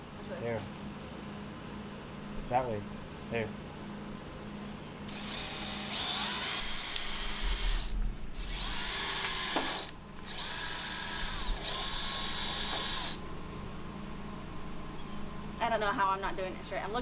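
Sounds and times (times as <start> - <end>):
power drill squealing into steel: 5.1 - 13.2.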